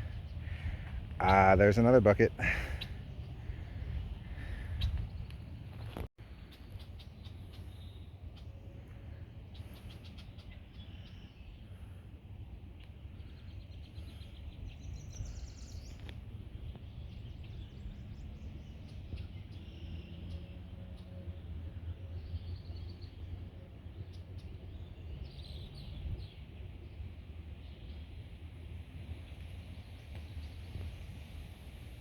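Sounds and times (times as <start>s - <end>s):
birds chirping and calling: 0.0s - 5.6s
wind on microphone: 2.4s - 6.1s.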